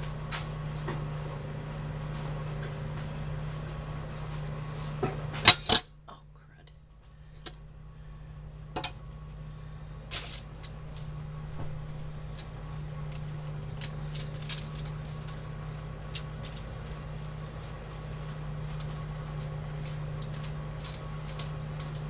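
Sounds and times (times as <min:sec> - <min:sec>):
steady low hum: 0:00.0 - 0:22.0
foil and wrapper crinkling: 0:09.1 - 0:22.0.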